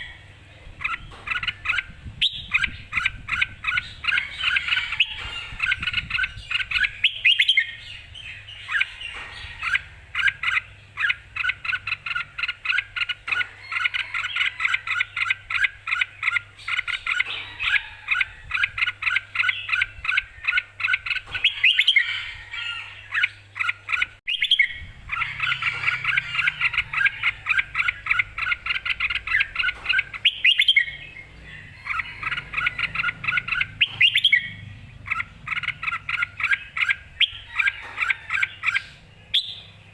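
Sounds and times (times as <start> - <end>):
bird singing chirping notes: 0.0 - 13.4, 23.1 - 39.9.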